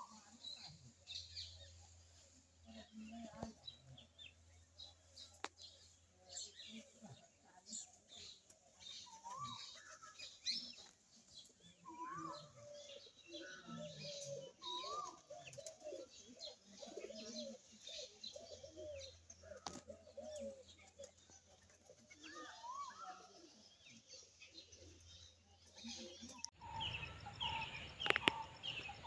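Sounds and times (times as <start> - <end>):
birds calling: 3.0 - 29.0
high bird chirps: 26.5 - 29.0.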